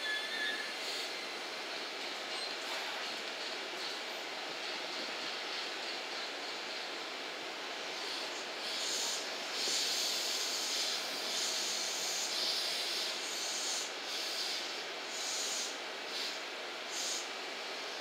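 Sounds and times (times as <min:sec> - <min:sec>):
high-pitched hissing surges: 0:00.0 - 0:18.0
idling electric train hiss: 0:00.0 - 0:18.0.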